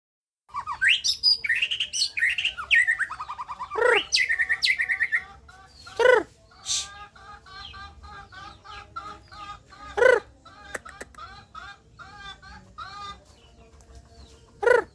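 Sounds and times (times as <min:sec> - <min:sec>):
bird singing whistles and trills: 0:00.5 - 0:07.0
bird chattering notes: 0:00.5 - 0:13.2.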